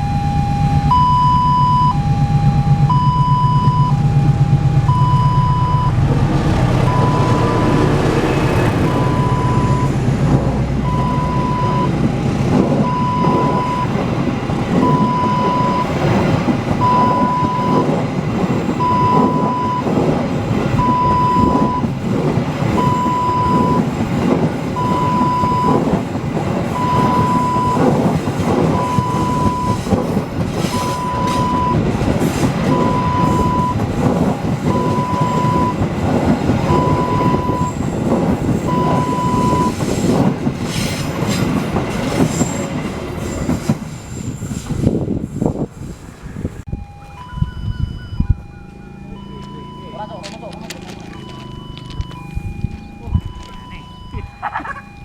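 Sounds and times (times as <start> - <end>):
electronic warning beep: 0.0 - 6.0, 6.9 - 7.9, 8.9 - 10.0, 10.8 - 12.0, 12.8 - 14.0, 14.8 - 16.0, 16.8 - 17.9, 18.8 - 19.9, 20.8 - 21.9, 22.8 - 23.9, 24.8 - 25.8, 26.8 - 27.8, 28.7 - 29.9, 30.7 - 31.8, 32.7 - 33.8, 34.7 - 35.8, 36.7 - 37.8, 38.7 - 39.8, 46.7 - 55.0
diesel locomotive engine: 0.0 - 55.0
train wheels clacking over rail joints: 11.8 - 45.0.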